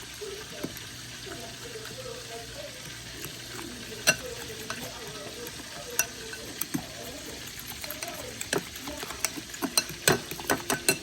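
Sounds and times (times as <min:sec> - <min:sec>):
utensil knocking against bowl: 0:07.7 - 0:11.0.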